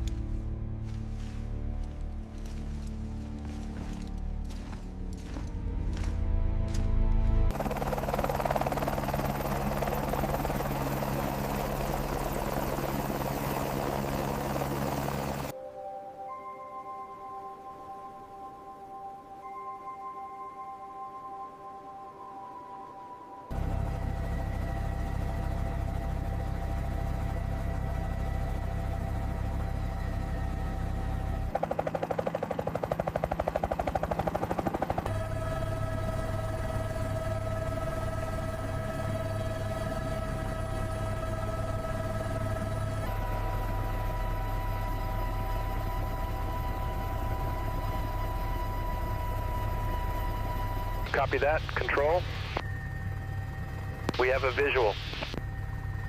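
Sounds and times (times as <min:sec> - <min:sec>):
helicopter rotor chopping: 0:07.5 - 0:15.5, 0:23.5 - 0:55.9.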